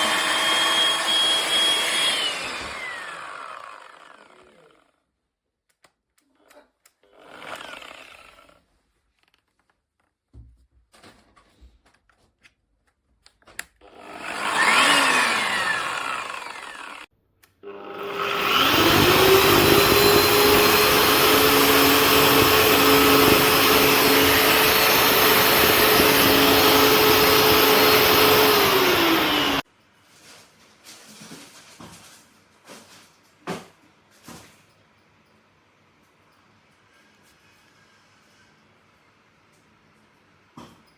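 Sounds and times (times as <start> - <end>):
electric drywall sander whining: 0.0 - 4.8, 13.8 - 29.6.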